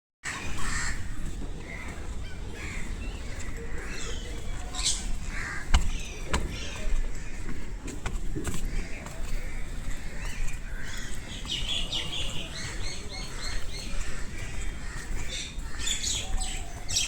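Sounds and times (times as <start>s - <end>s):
bird calls: 0.2s - 17.0s
crows cawing: 0.2s - 17.0s.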